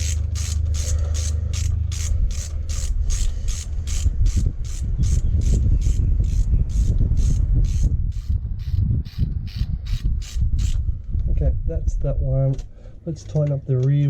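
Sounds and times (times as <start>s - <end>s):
socket ratchet rasping: 0.0s - 10.8s.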